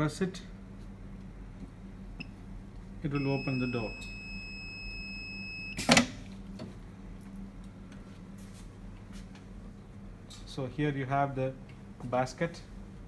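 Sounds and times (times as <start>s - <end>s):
low steady hum: 0.0s - 13.0s
control panel high beep: 3.1s - 5.8s
door unlatching clunk: 5.8s - 6.7s.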